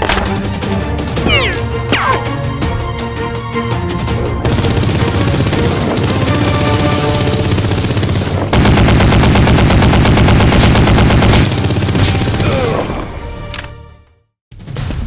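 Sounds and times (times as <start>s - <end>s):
rapid automatic gunfire: 4.4s - 12.5s.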